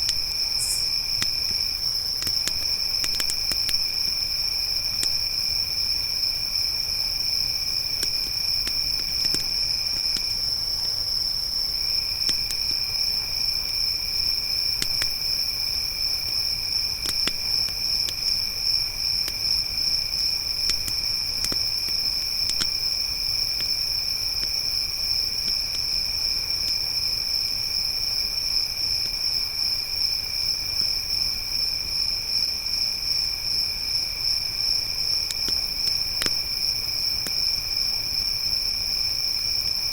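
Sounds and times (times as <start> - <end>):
campfire crackling and popping: 0.0 - 6.2, 7.2 - 10.9, 12.2 - 26.9, 35.2 - 37.9
high crickets trilling: 0.0 - 39.9
lower-pitched cricket trill: 0.0 - 39.9.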